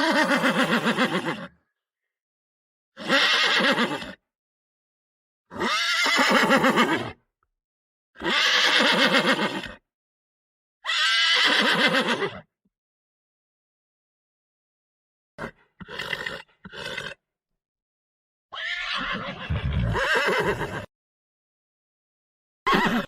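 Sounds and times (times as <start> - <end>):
horse whinnying: 0.0 - 1.5, 3.0 - 4.2, 5.6 - 7.2, 8.2 - 9.8, 10.8 - 12.4, 18.5 - 20.9, 22.7 - 23.0.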